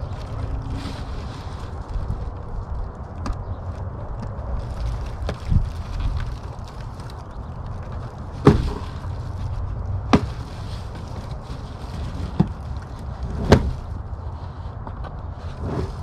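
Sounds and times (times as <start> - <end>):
sharp knocks of handled packaging: 8.4 - 9.0, 10.1 - 10.5.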